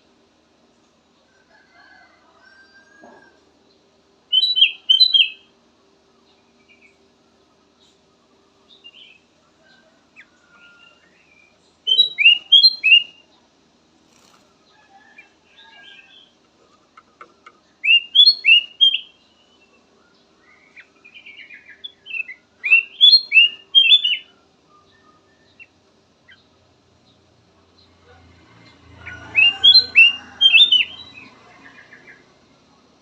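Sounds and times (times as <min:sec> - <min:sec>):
bulbul whistled song: 0:04.3 - 0:05.5, 0:10.4 - 0:13.3, 0:17.8 - 0:25.8, 0:29.1 - 0:32.2
soft bird chirps: 0:14.1 - 0:28.0.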